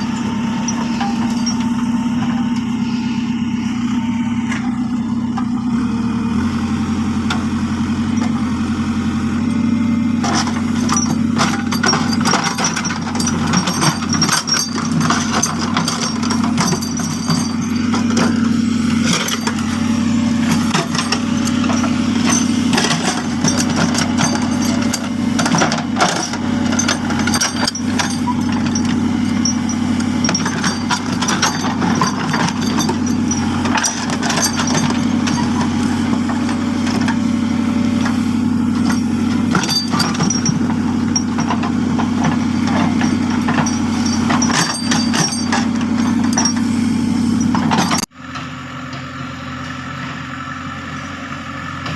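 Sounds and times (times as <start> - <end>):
knocks and rattles: 0.0 - 2.8, 10.2 - 48.1
diesel engine running: 0.0 - 51.9.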